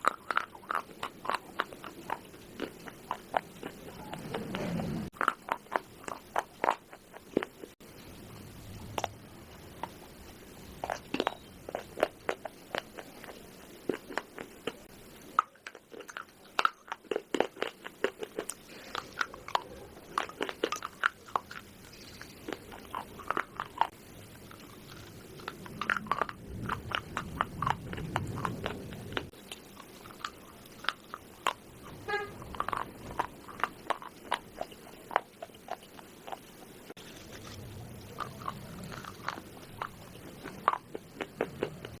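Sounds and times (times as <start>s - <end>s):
person crunching baked clay: 10.8s - 42.0s.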